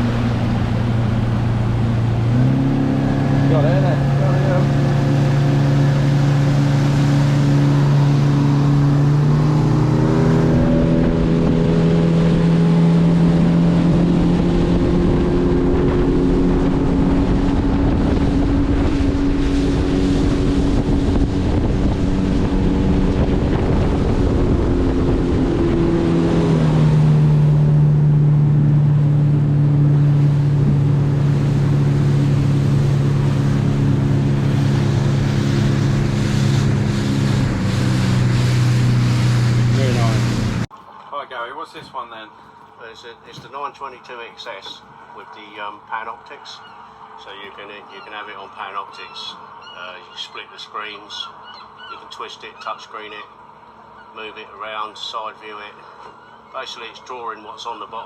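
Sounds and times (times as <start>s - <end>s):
outboard motor running: 0.0s - 40.9s
water rushing: 0.0s - 58.0s
wind on microphone: 4.5s - 40.7s.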